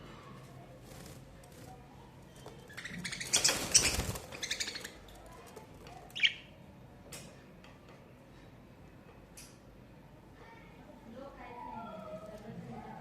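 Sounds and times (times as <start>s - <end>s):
budgerigars chirping: 2.7s - 5.0s.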